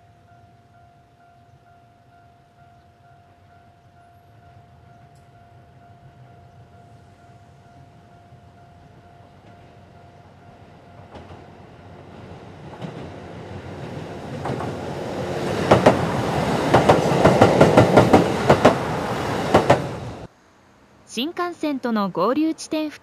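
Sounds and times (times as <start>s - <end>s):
diesel train passing: 0.0s - 23.0s
wheels clacking over rail joints: 11.0s - 20.2s.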